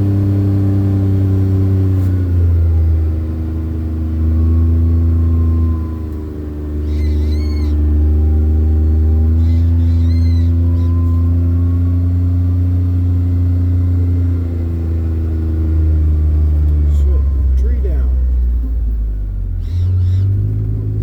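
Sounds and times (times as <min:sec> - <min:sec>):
vehicle engine humming: 0:00.0 - 0:21.0
short high squeaks: 0:06.0 - 0:08.5, 0:09.3 - 0:12.2, 0:19.6 - 0:20.5.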